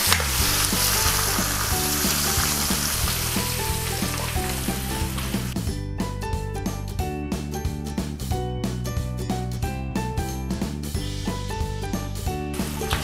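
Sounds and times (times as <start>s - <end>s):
shallots sizzling in hot oil: 0.0s - 5.6s, 12.6s - 13.0s
spatula stirring in a wok: 0.0s - 5.6s
background music: 0.0s - 13.0s.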